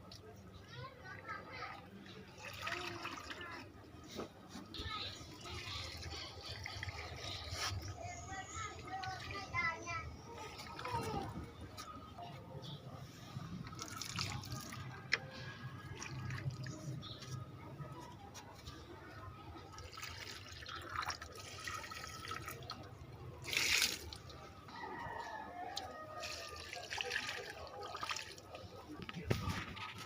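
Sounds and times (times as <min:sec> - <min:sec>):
water splashing and dripping: 0:13.6 - 0:17.3, 0:19.7 - 0:24.5, 0:25.8 - 0:30.0.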